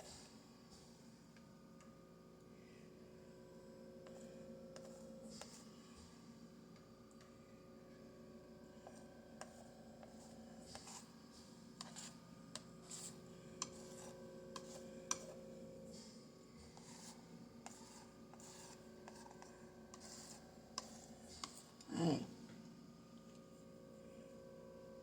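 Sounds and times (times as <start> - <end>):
low room hum: 0.0 - 25.0
paint scraping on canvas: 10.0 - 11.1, 11.8 - 21.6.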